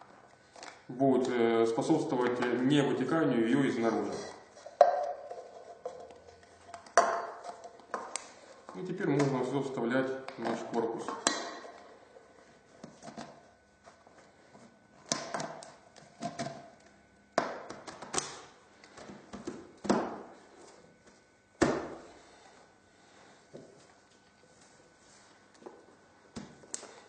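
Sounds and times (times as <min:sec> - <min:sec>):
cans clinking against glass jar: 0:04.7 - 0:08.2.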